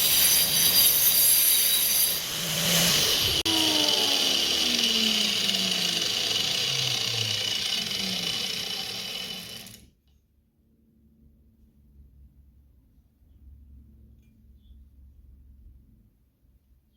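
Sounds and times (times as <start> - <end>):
angle grinder running: 0.0 - 9.9.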